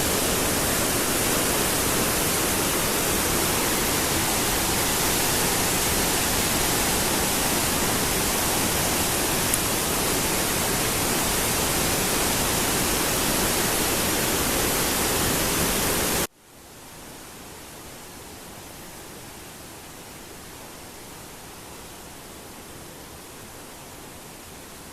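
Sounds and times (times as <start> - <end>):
water rushing: 0.0 - 16.3.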